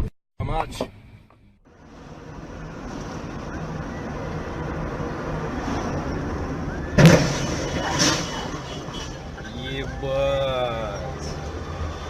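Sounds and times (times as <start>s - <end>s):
car road and engine noise: 0.5s - 12.0s
loud car crash: 6.8s - 9.2s.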